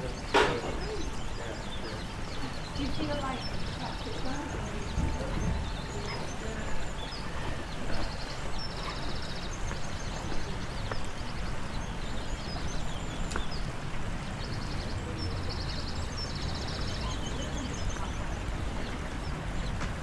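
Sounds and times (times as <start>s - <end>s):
low outdoor rumble: 0.0s - 20.0s
small birds chirping: 0.0s - 20.0s.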